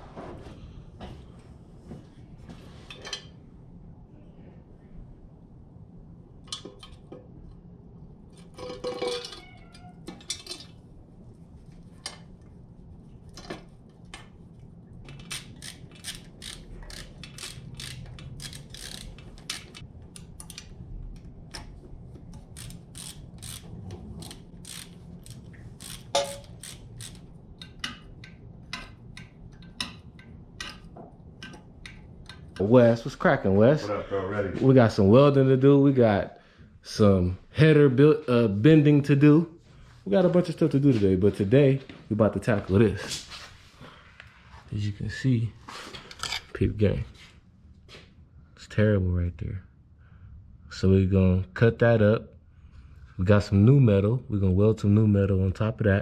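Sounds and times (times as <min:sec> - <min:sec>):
hand ratchet clicking: 0:15.1 - 0:20.7, 0:22.3 - 0:30.8.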